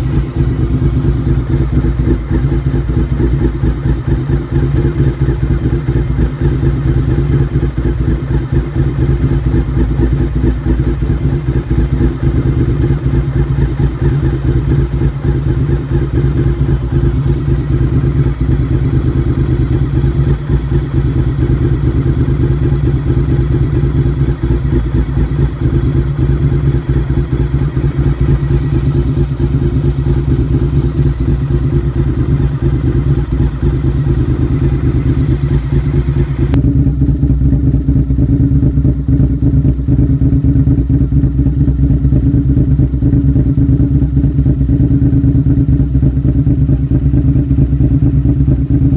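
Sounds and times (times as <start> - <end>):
motorcycle engine idling: 0.0 - 48.9.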